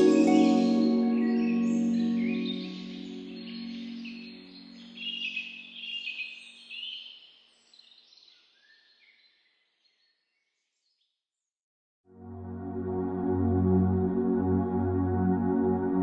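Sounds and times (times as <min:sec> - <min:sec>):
low sustained tone: 0:00.0 - 0:05.4
soft ambient synthesizer music: 0:00.0 - 0:05.8, 0:12.2 - 0:16.0
birds chirping: 0:00.0 - 0:07.0.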